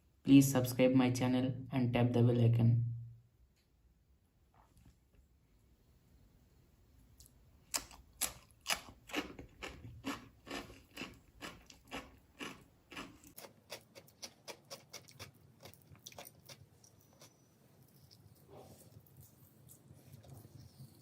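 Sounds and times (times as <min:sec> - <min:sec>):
chewing and mouth smacks: 0:07.2 - 0:18.4.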